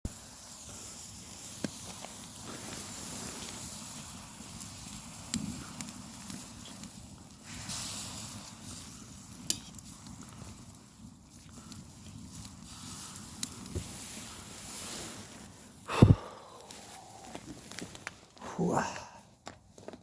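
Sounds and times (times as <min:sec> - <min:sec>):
fire crackling: 0:00.1 - 0:20.0
sharp pops: 0:15.9 - 0:18.2.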